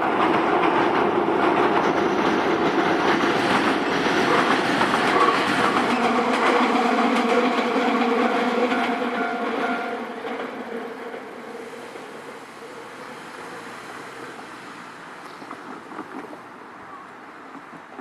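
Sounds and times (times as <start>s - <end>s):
train rumble: 0.0s - 18.0s
level-crossing warning bell: 5.1s - 10.5s.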